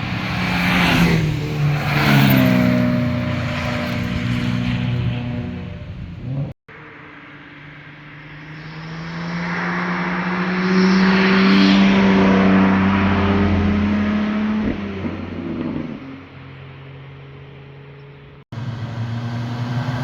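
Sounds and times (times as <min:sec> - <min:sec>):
car engine driving past: 0:18.6 - 0:20.0.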